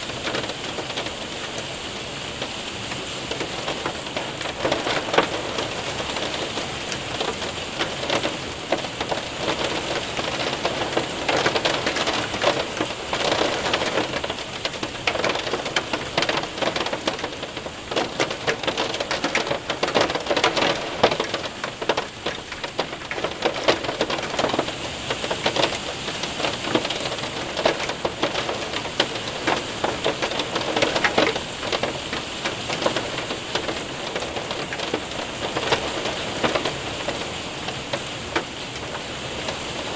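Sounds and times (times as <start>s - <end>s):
hailstones ticking: 0.0s - 39.9s
rain on a window and roof: 0.0s - 39.9s.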